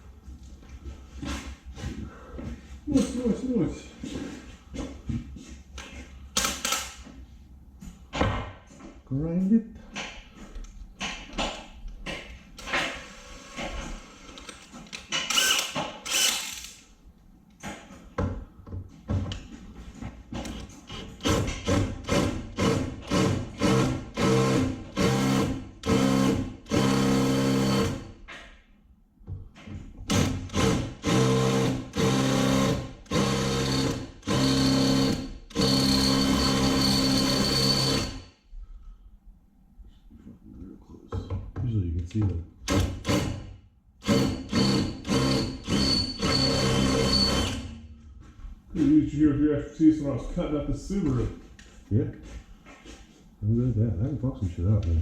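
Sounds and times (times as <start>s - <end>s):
electric power tool on metal: 15.3s - 16.8s.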